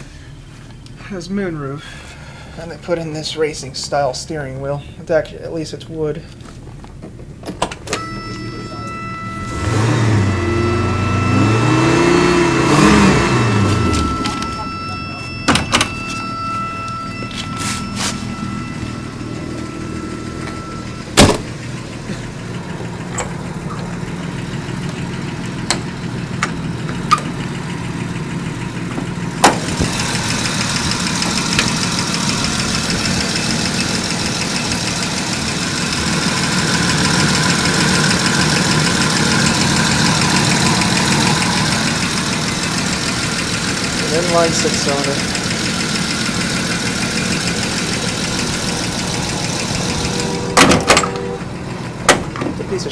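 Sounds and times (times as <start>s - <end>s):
car engine idling: 0.0s - 52.9s
loud thump: 21.1s - 21.6s, 29.4s - 29.9s, 50.6s - 51.2s.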